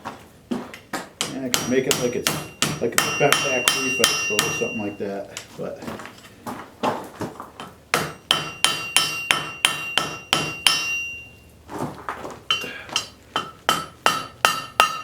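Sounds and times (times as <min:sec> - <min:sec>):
hammer striking steel on anvil: 0:01.2 - 0:05.0, 0:07.9 - 0:11.3, 0:12.5 - 0:15.0.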